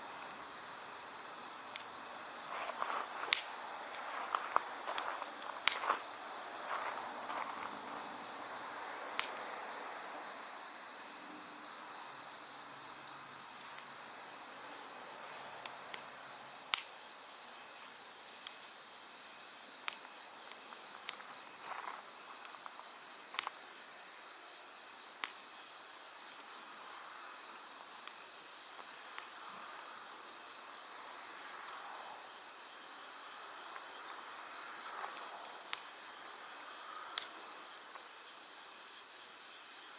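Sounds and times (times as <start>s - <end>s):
insects chirping: 0.0s - 39.9s
wood fire crackling and popping: 1.6s - 8.0s, 9.1s - 9.4s, 15.6s - 17.0s, 19.8s - 24.2s, 25.1s - 25.5s, 27.5s - 29.3s, 35.0s - 36.0s, 37.2s - 38.1s.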